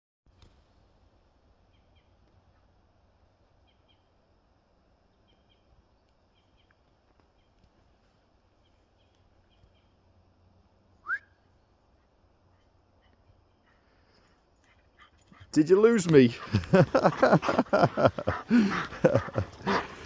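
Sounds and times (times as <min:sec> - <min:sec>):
woodland background: 0:00.3 - 0:20.0
small bird chirping: 0:05.1 - 0:07.6
rising whistle: 0:11.0 - 0:11.4.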